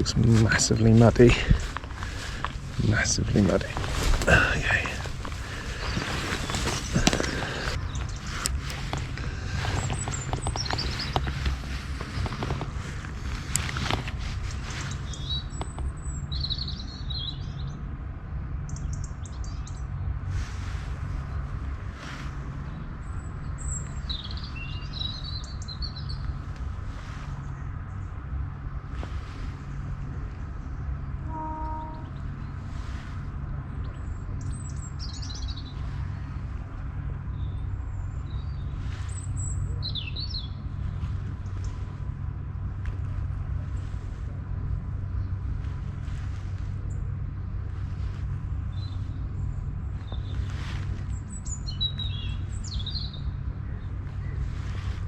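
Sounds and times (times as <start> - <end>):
small songbird singing: 0.0 - 12.6, 14.7 - 17.8, 23.0 - 26.4, 33.8 - 36.2, 37.3 - 40.8, 48.7 - 54.9
sharp rustles and clicks: 0.0 - 16.0
small birds chirping and trilling: 0.0 - 17.8, 21.0 - 28.2, 33.7 - 44.0, 47.8 - 55.0
low rumble: 0.0 - 55.0.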